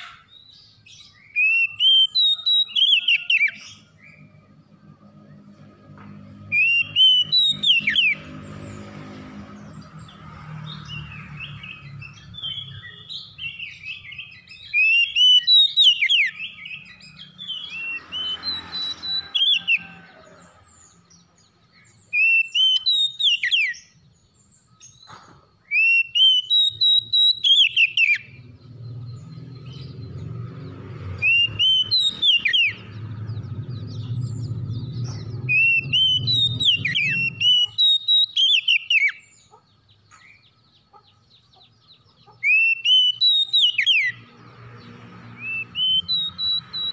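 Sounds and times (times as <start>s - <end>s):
songbird whistling: 0.0s - 4.4s, 6.5s - 8.3s, 11.4s - 20.0s, 21.9s - 24.0s, 24.7s - 28.4s, 31.2s - 32.9s, 33.9s - 39.5s, 42.3s - 44.2s, 45.4s - 46.9s.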